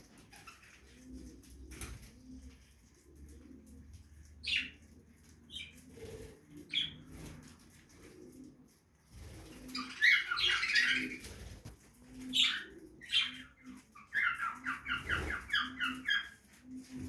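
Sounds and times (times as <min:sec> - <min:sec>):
budgerigars chattering and squawking: 0:04.4 - 0:04.8, 0:09.7 - 0:11.3, 0:12.3 - 0:16.4.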